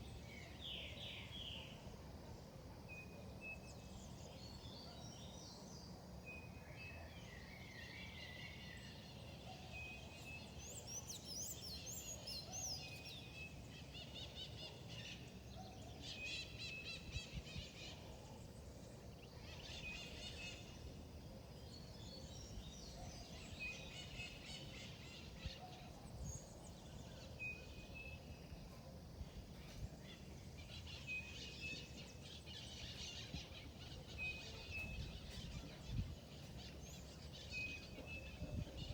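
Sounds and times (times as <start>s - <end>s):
low background hiss: 0.0s - 38.9s
birds singing and chirping: 29.5s - 38.9s.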